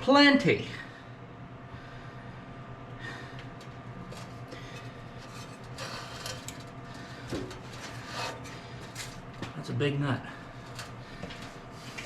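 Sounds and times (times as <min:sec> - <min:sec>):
steady low hum: 0:00.0 - 0:12.0
scrapes and knocks of handled parts: 0:03.6 - 0:09.6.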